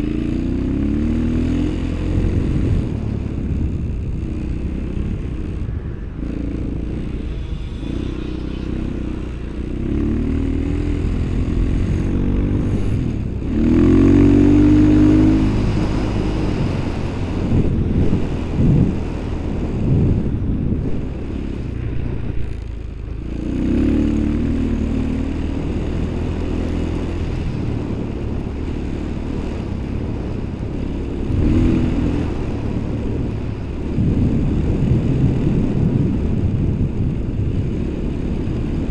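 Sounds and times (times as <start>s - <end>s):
small vehicle engine revving: 0.0s - 38.9s.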